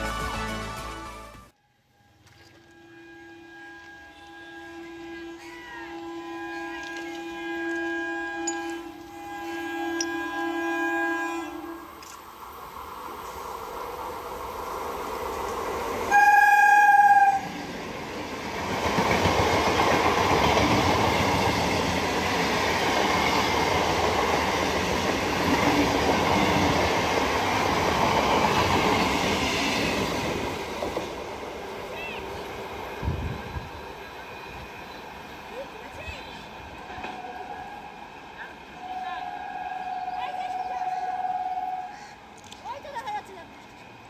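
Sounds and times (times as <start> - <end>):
train horn: 1.9 - 12.0, 16.1 - 17.6, 36.9 - 38.0, 38.8 - 42.2
train rumble and wheel clatter: 3.7 - 44.0.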